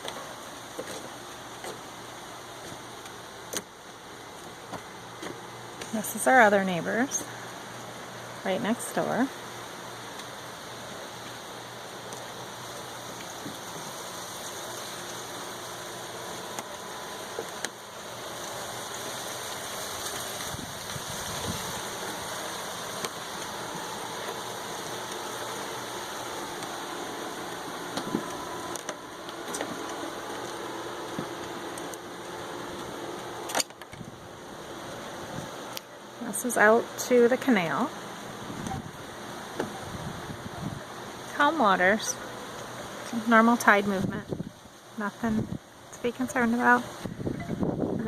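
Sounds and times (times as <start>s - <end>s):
strong wind: 20.2s - 22.4s, 38.3s - 41.4s, 43.8s - 44.6s, 45.2s - 45.7s, 46.8s - 48.0s.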